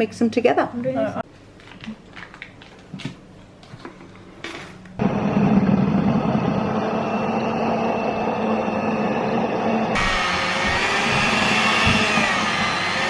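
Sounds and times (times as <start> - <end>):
electric mixer running: 5.0 - 13.0.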